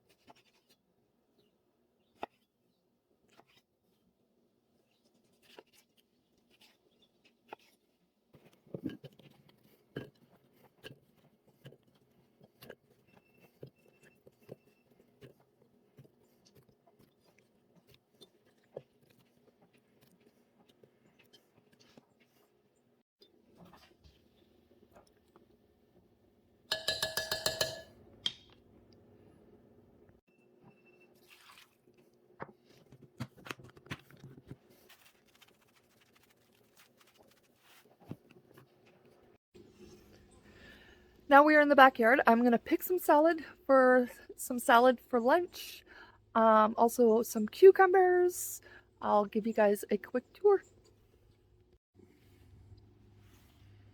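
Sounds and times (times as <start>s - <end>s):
utensils clicking and knocking: 26.7s - 28.6s.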